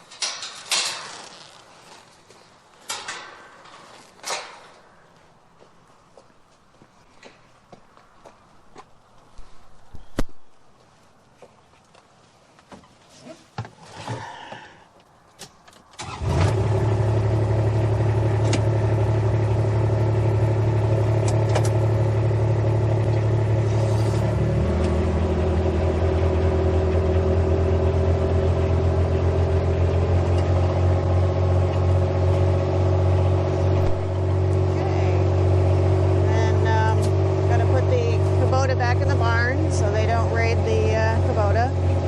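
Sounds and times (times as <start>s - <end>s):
footsteps: 0.0s - 13.8s
farm vehicle engine running: 16.0s - 42.0s.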